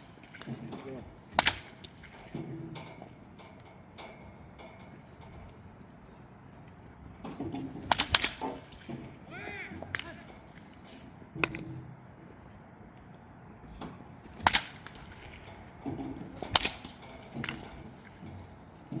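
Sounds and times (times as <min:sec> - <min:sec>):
bats cracking balls: 0:00.0 - 0:05.7, 0:06.7 - 0:12.0, 0:12.9 - 0:19.0.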